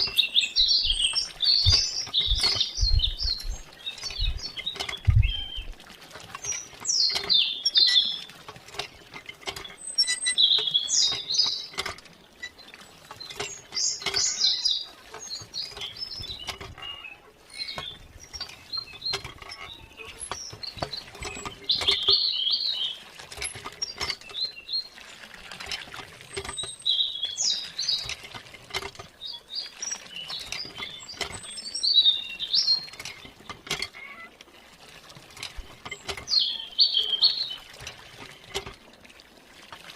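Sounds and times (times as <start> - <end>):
birds chirping: 0.0 - 5.8, 6.4 - 8.3, 9.6 - 23.0, 23.7 - 25.1, 26.3 - 28.2, 29.0 - 34.3, 35.6 - 38.5.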